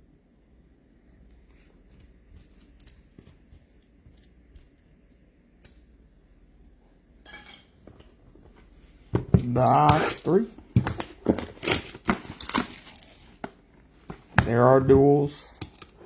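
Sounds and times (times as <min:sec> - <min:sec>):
cards clicking and rustling: 0:09.5 - 0:13.4.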